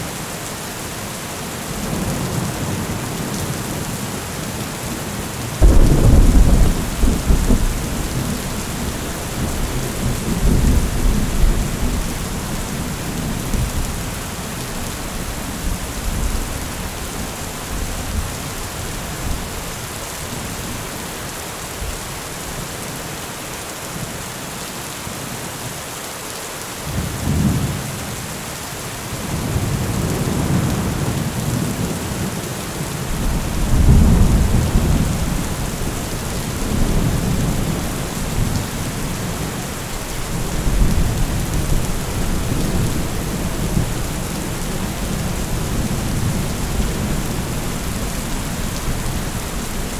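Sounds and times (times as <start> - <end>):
heavy rain falling: 0.0 - 49.9
rolling thunder: 5.6 - 18.4, 33.1 - 49.9.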